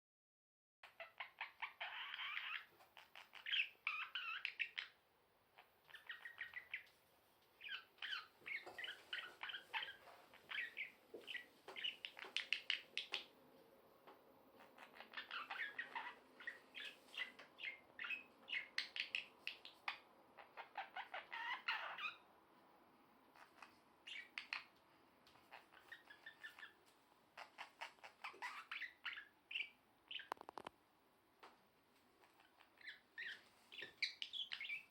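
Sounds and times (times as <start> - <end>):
budgerigar chattering chirps: 0.8 - 5.0, 5.6 - 6.9, 7.6 - 13.3, 14.6 - 22.3, 23.4 - 24.7, 25.4 - 26.8, 27.4 - 30.7, 32.4 - 34.9.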